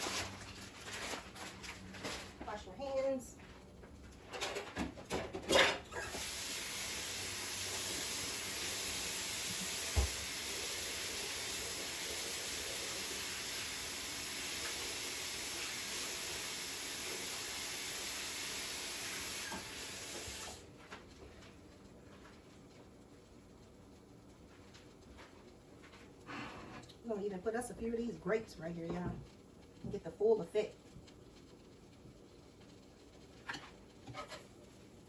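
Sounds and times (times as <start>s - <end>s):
tap water running: 5.3s - 20.7s.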